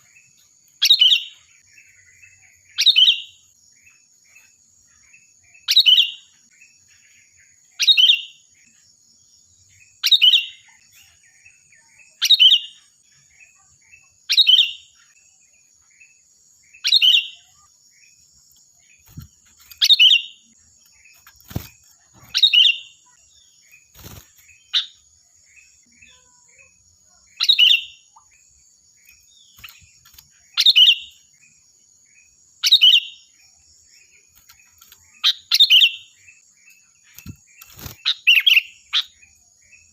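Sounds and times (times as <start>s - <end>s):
bulbul calling: 18.9s - 23.2s, 29.1s - 31.2s.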